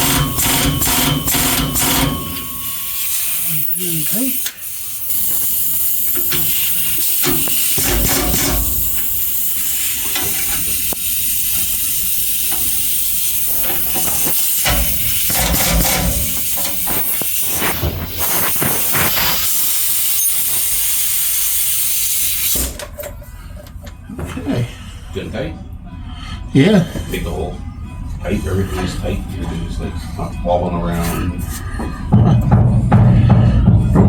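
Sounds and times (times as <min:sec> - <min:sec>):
loud steady hiss: 0:00.0 - 0:22.8
sharp clicks and knocks: 0:13.6 - 0:19.5.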